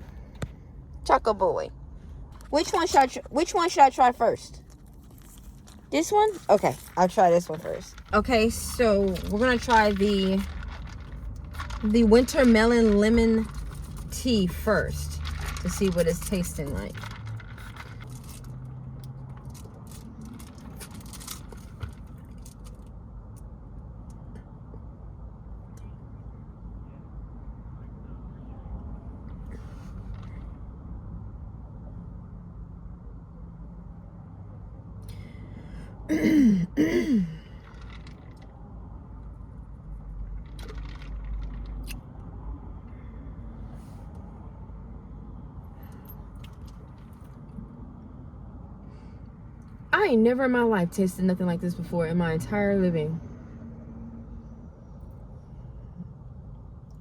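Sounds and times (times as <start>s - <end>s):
low rumble inside a car: 0.0s - 57.0s
light crackles and scrapes: 4.5s - 23.5s, 29.2s - 30.6s, 37.5s - 39.4s, 40.0s - 43.0s, 43.6s - 44.4s
small clicks and rustles: 4.6s - 24.5s, 37.5s - 43.0s, 45.8s - 47.6s.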